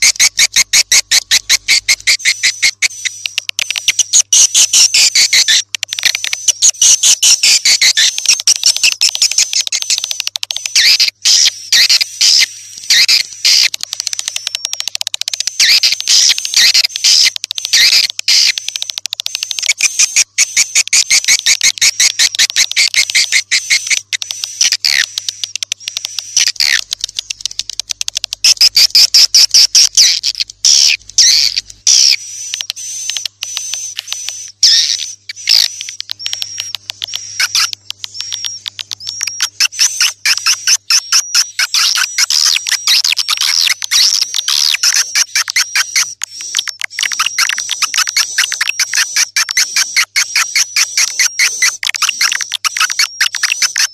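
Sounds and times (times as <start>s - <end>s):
swiftlets twittering chirps: 0.0s - 53.9s.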